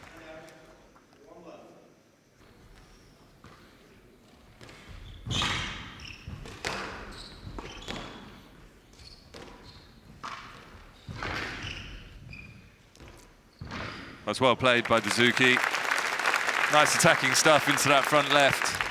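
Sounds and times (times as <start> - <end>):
shoes squeaking on court floor: 2.4 - 15.6
squash ball striking rackets and walls: 4.6 - 8.7, 9.3 - 12.3.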